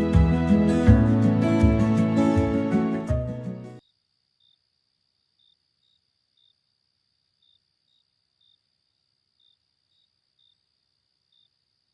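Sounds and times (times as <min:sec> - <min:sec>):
crickets chirping faintly: 0:03.8 - 0:11.9.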